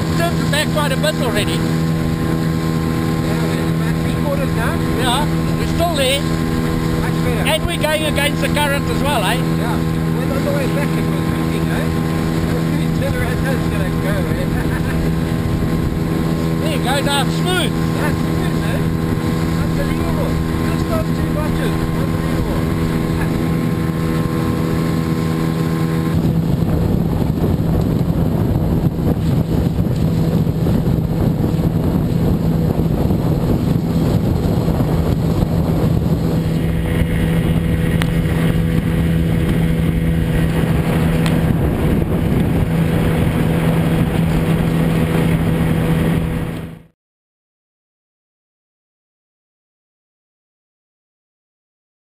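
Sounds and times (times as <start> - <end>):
outboard motor running: 0.0 - 46.9
water rushing: 0.0 - 46.9
wind: 0.0 - 46.9.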